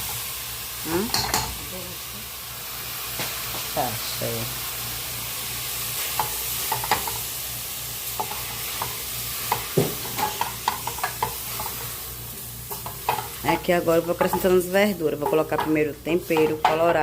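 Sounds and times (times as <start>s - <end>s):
onion sizzling in oil: 0.0s - 17.0s
utensil scraping and clinking pan: 8.2s - 11.9s, 12.7s - 17.0s.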